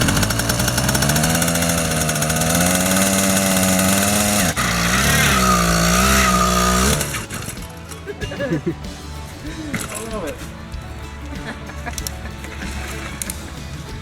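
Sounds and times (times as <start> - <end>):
two-stroke engine revving: 0.0 - 10.5.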